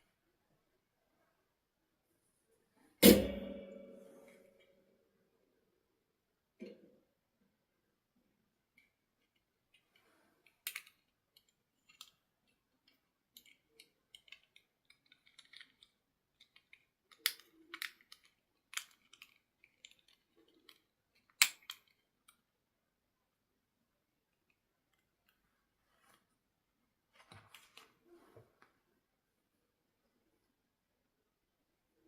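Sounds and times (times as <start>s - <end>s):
objects being handled clicking: 8.7s - 22.5s.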